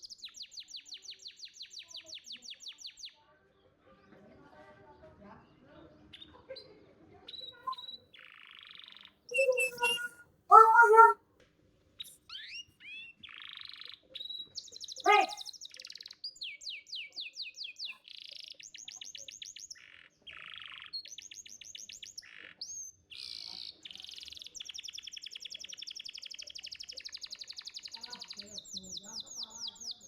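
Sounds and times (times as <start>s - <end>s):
canary singing trills: 9.4s - 11.2s, 15.1s - 15.4s.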